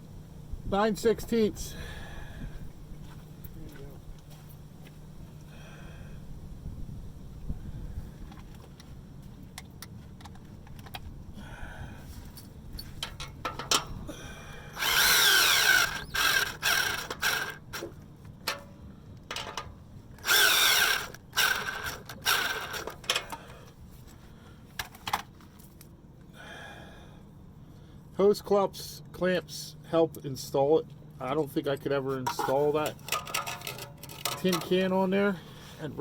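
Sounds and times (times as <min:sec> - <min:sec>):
power drill spinning socket: 0:14.8 - 0:17.9, 0:20.2 - 0:23.4
tool handling clicks: 0:14.8 - 0:23.5, 0:32.3 - 0:34.8.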